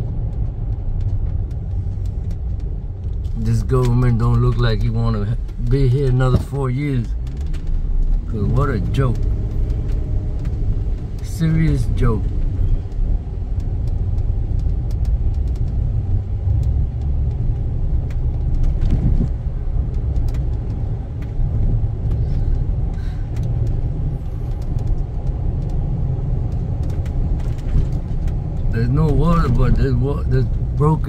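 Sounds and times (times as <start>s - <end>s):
car road and engine rumble: 0.0s - 31.0s
faint clicks: 7.0s - 19.2s, 19.9s - 30.6s.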